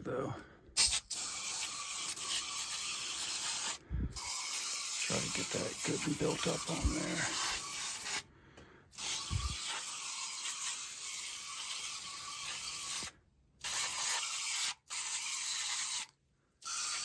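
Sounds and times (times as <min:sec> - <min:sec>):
aerosol can hissing: 0:00.8 - 0:08.2, 0:09.0 - 0:17.0.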